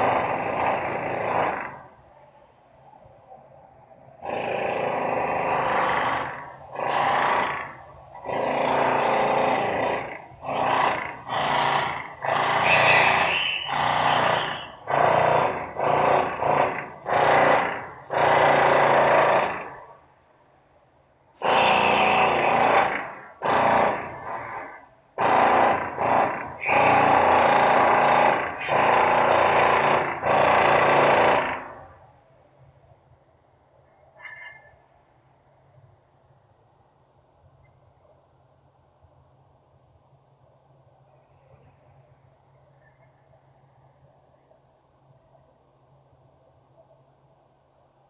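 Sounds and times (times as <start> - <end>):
loud industrial machine bursts: 4.2 - 19.7, 21.4 - 24.6, 25.2 - 31.8.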